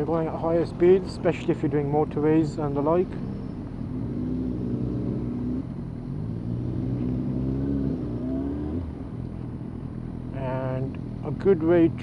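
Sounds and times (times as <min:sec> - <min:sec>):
vehicle engine accelerating: 0:02.5 - 0:09.9.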